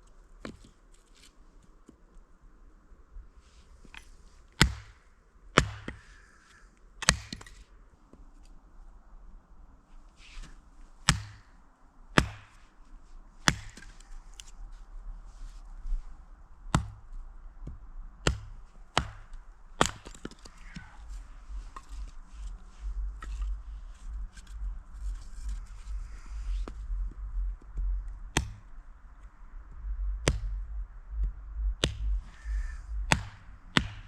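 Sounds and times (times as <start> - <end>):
chopping strikes: 4.6 - 5.0, 5.6 - 6.0, 7.0 - 7.6, 12.2 - 12.6, 13.4 - 13.9, 18.2 - 20.9, 31.8 - 32.0, 33.1 - 34.0
rustling and handling noise: 20.0 - 28.0
low rumble: 20.4 - 34.0.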